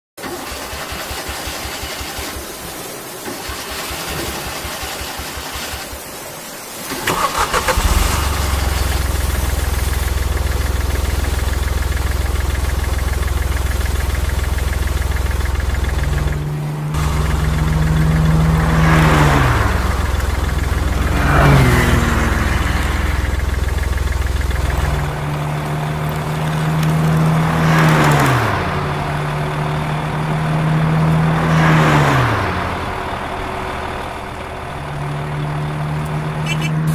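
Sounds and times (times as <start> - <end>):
tractor engine running: 0.2 - 36.9
falling whines: 12.3 - 27.2, 36.4 - 36.9.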